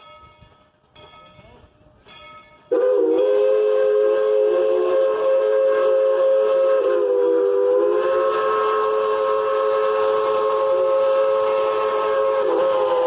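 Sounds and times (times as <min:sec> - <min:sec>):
steam locomotive whistle: 0:02.7 - 0:13.0.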